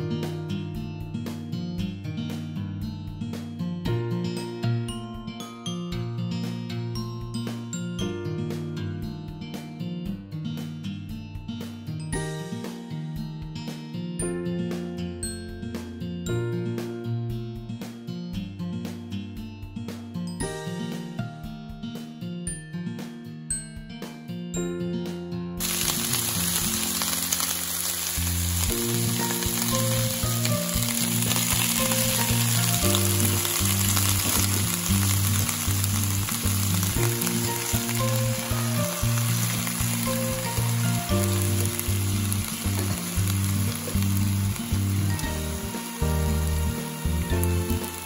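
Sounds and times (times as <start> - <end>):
vegetables sizzling in a hot pan: 25.6 - 48.0.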